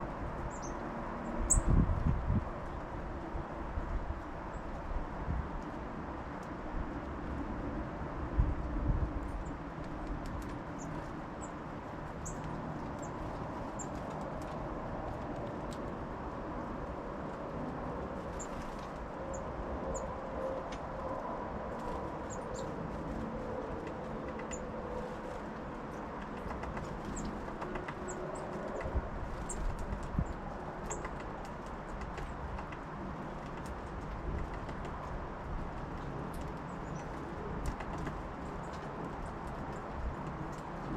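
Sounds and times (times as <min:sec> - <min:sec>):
songbirds chirping: 0:00.0 - 0:01.8, 0:09.4 - 0:14.6, 0:17.6 - 0:40.9
small birds chirping: 0:00.5 - 0:00.8, 0:10.7 - 0:14.0, 0:22.2 - 0:22.8, 0:26.0 - 0:32.8, 0:36.3 - 0:37.8.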